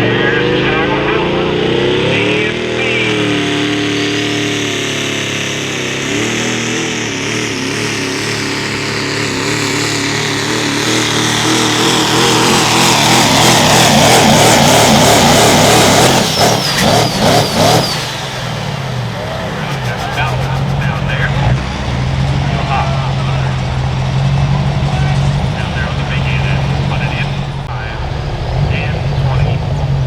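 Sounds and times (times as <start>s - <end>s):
diesel truck engine under load: 0.0s - 30.0s.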